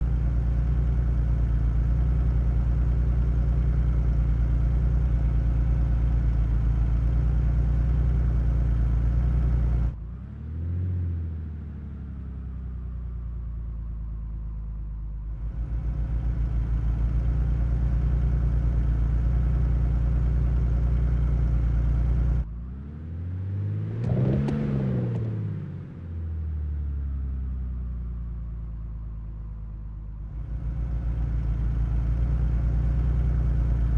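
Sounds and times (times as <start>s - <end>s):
car engine idling: 0.0s - 10.2s, 12.6s - 22.5s, 26.0s - 33.9s
car engine revving: 21.0s - 26.1s.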